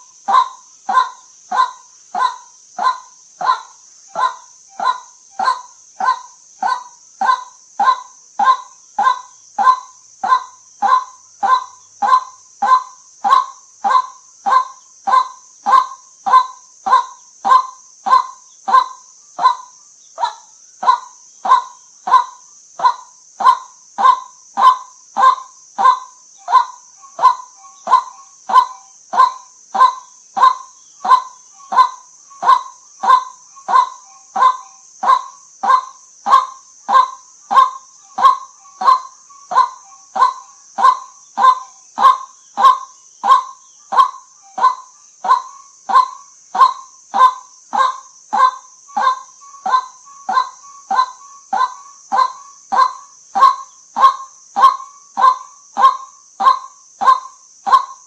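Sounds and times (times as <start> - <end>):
waterhen calling: 0.0 - 57.9
steady high hiss: 0.0 - 58.0.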